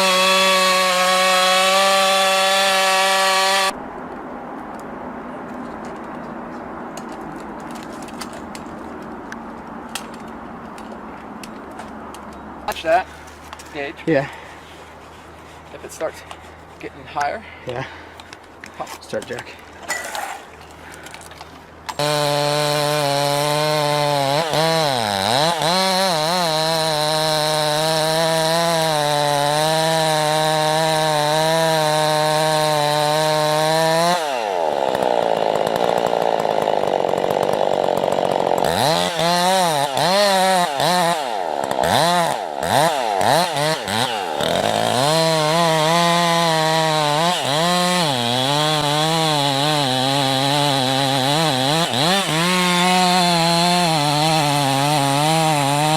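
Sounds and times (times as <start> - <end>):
small engine cutting wood: 0.0 - 3.8, 19.9 - 55.9.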